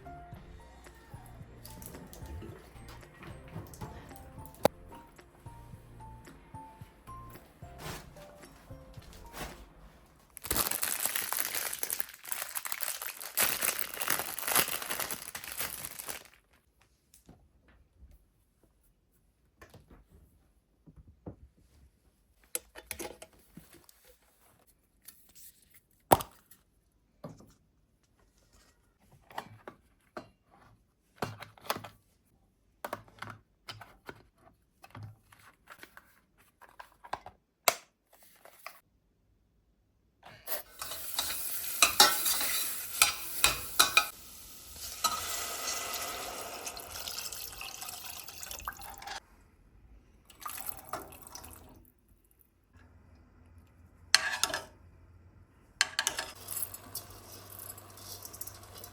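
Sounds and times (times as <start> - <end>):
crinkly material tearing and rustling: 9.1 - 16.7
kitchen knocks and clicks: 40.8 - 44.2.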